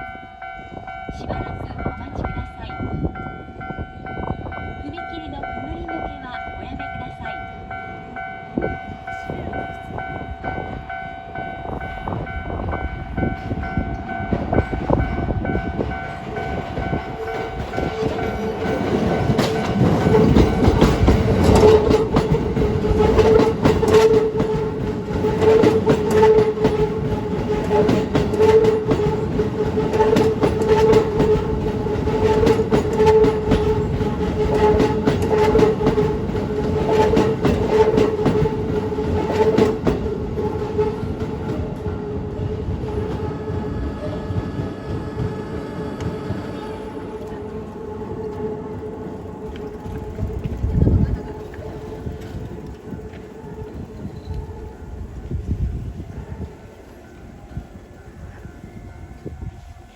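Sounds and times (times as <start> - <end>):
train rumble: 0.0 - 59.9
wheels clattering over rail joints: 12.8 - 44.2, 44.9 - 57.4.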